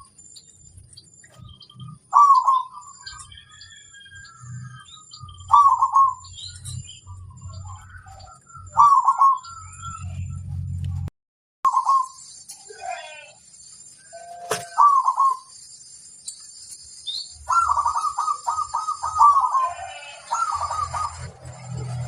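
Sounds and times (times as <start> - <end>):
dove cooing: 1.4 - 3.3, 5.4 - 9.6, 11.7 - 12.1, 14.2 - 15.5, 17.4 - 22.0
faint high chirps: 11.7 - 22.0.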